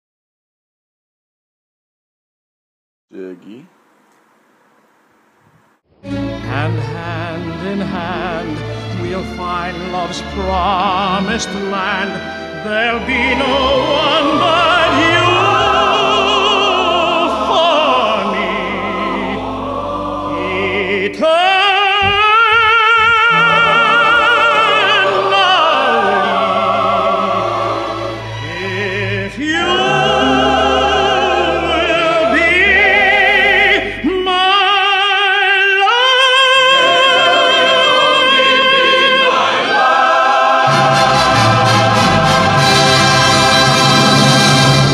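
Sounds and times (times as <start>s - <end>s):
orchestra playing: 5.9s - 21.1s, 23.2s - 33.8s, 36.6s - 44.9s
operatic solo singing: 6.0s - 44.9s.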